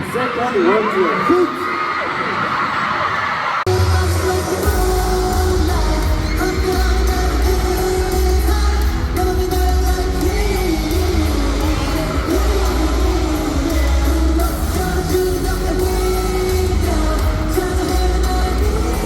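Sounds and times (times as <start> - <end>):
crowd yelling: 0.0 - 19.0
pop song over sound system: 0.0 - 19.0.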